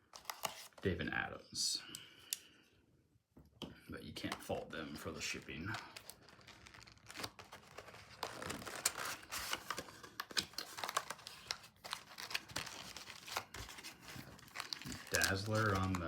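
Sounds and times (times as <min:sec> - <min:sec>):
packaging crinkling and tearing: 0:00.0 - 0:00.8, 0:04.9 - 0:16.0.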